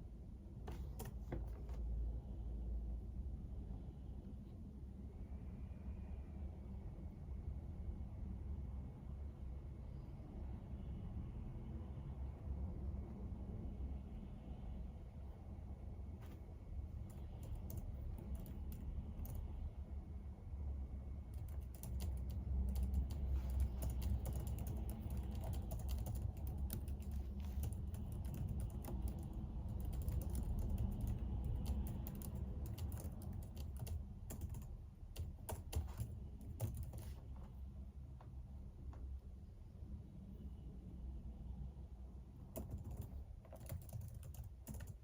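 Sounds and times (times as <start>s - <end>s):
computer keyboard typing: 0.7s - 1.5s, 17.0s - 19.5s, 21.3s - 37.2s, 42.5s - 45.0s.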